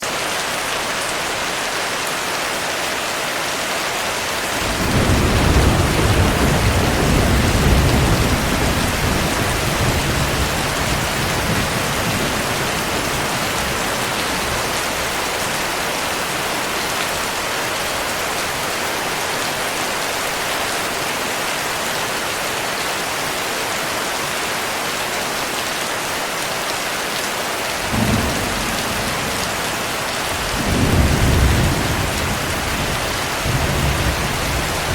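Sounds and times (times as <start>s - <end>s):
heavy rain: 0.0s - 34.9s
thunder rumbling: 4.6s - 15.3s, 27.8s - 34.9s.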